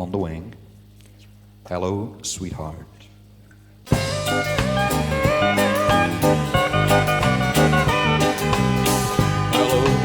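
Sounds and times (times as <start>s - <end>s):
live country band playing: 3.9s - 10.0s.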